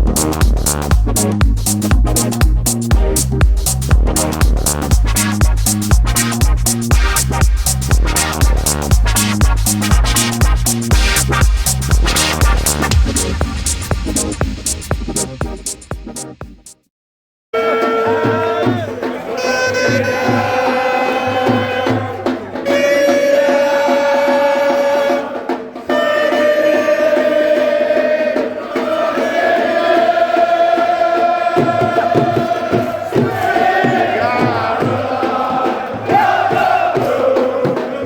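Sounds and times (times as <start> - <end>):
drum beating steadily: 0.0 - 16.8, 20.0 - 38.0
crowd singing and chanting: 17.6 - 38.0.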